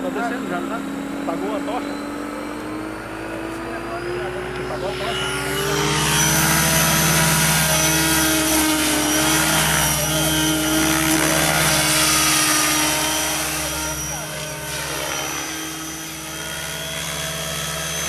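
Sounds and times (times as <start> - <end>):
helicopter rotor and engine: 0.0 - 18.0.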